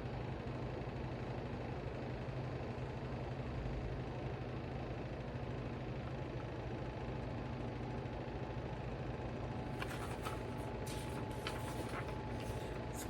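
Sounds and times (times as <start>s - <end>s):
steady low hum: 9.6s - 13.0s
light clicks and rustles: 9.8s - 13.0s.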